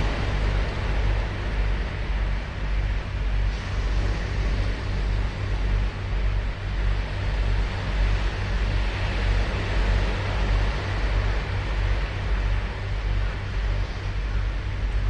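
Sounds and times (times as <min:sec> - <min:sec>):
heavy low rumble: 0:00.0 - 0:15.0.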